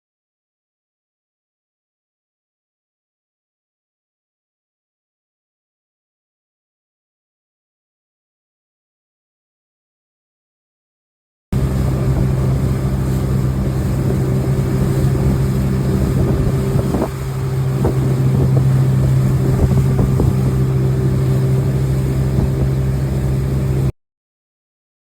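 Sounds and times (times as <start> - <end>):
motorboat engine running: 11.6 - 23.9
wind on microphone: 11.6 - 23.9.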